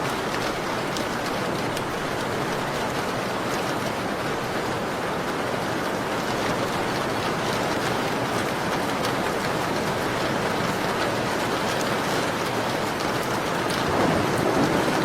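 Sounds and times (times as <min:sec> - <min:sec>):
rain on a window: 0:00.0 - 0:15.0.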